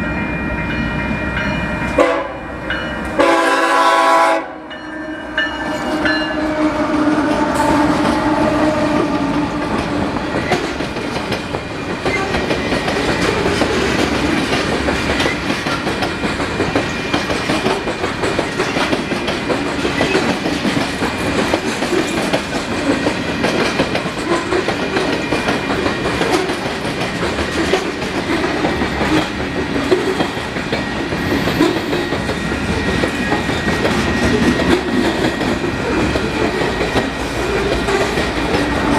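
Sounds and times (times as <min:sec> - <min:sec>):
train horn: 0:01.9 - 0:10.0, 0:37.4 - 0:38.9
freight train cars clattering: 0:05.4 - 0:38.9.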